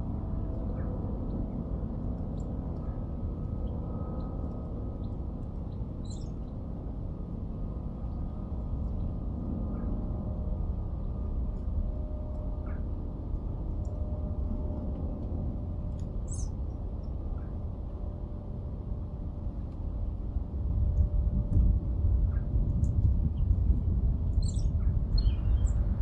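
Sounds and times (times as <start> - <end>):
steady low rumble: 0.0 - 26.0
small birds chirping: 6.0 - 6.4, 24.4 - 25.9.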